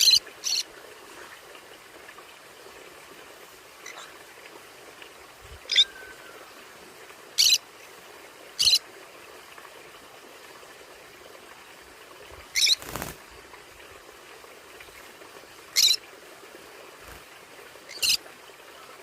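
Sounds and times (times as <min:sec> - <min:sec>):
parrot shrill calls: 0:05.7 - 0:06.3.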